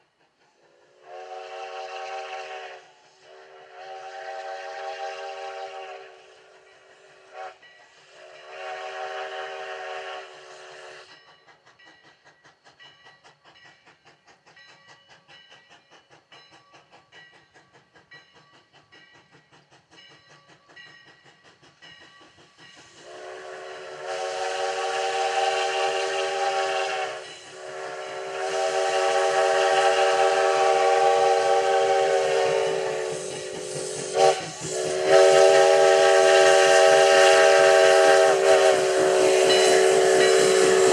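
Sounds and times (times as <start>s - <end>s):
steam locomotive chuffing: 0.0s - 40.9s
steam whistle blasts: 0.7s - 11.1s, 23.0s - 40.9s.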